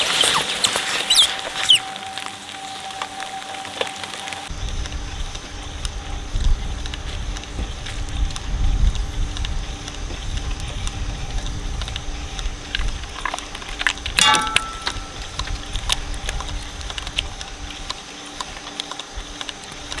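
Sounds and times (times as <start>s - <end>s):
material crackling and snapping: 0.0s - 4.5s
shredder humming: 0.0s - 20.0s
sharp ringing crack: 14.2s - 15.4s.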